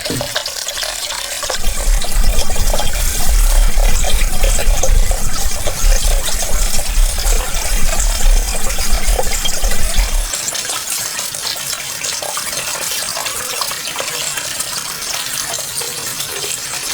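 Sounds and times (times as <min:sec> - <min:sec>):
water running and splashing: 0:00.0 - 0:10.6.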